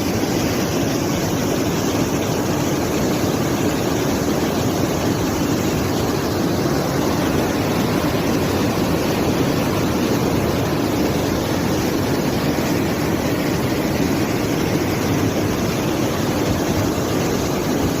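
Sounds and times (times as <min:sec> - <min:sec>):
floodwater rushing down stream: 0:00.0 - 0:18.0.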